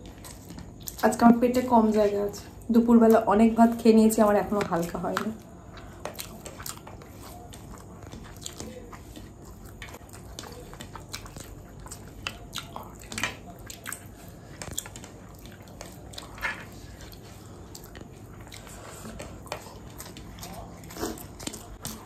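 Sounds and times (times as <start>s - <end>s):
steady low hum: 0.0s - 22.0s
wet chewing smacks: 5.6s - 22.0s.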